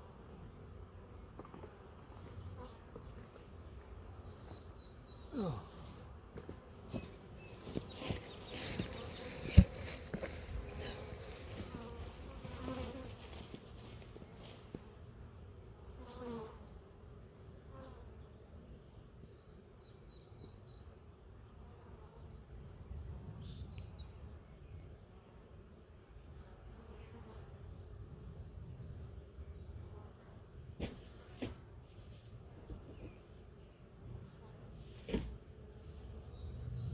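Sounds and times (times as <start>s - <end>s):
bees buzzing: 2.0s - 14.3s.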